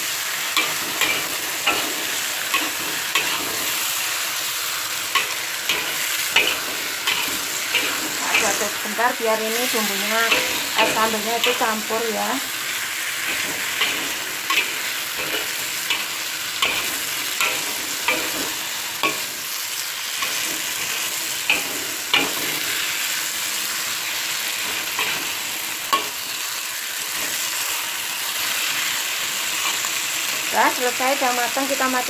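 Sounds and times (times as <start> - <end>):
food sizzling in a wok: 0.0 - 32.0
metal spatula scraping a wok: 0.6 - 4.2, 4.9 - 12.0, 13.2 - 22.8.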